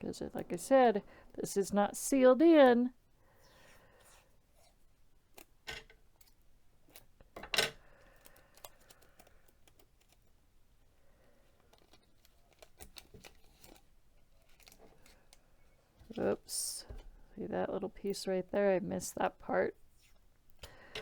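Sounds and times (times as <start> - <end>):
tape clicks and crinkles: 8.1 - 10.4, 11.4 - 16.2.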